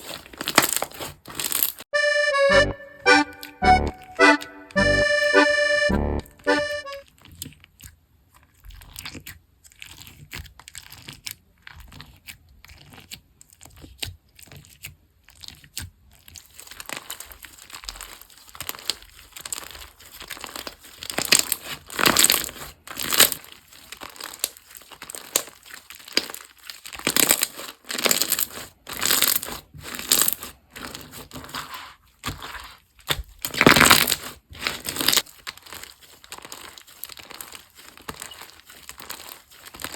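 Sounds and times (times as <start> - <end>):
slime crackling and crunching: 0.0 - 1.8, 15.3 - 31.6, 32.3 - 39.9
short musical jingle: 2.0 - 7.0.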